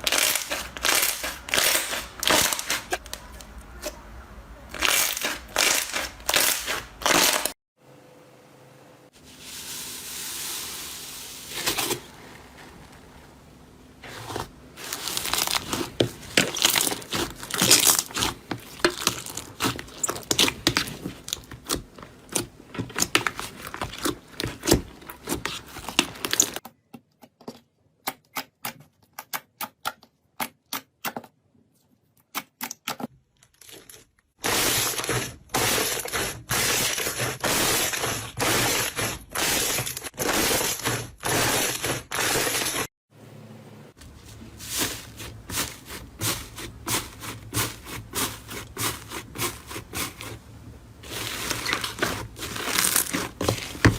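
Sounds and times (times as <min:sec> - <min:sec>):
slime crackling and squishing: 0:00.0 - 0:03.4, 0:14.1 - 0:26.6, 0:44.1 - 0:53.9.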